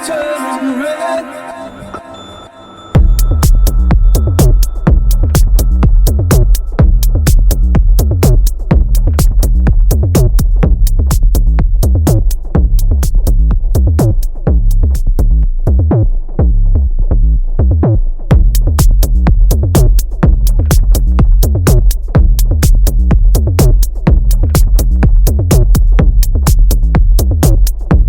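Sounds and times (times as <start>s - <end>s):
hi-hat ticks: 3.0s - 15.0s, 18.3s - 28.0s
drum machine bassline: 3.0s - 28.0s.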